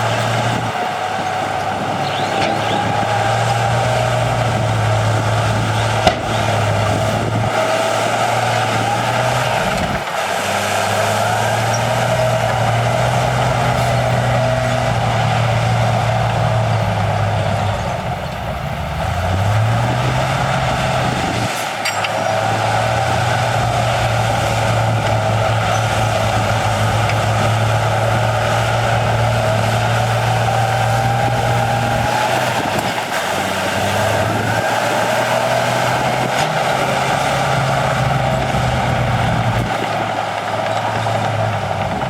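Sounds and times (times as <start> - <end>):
diesel machinery running: 0.0 - 42.0.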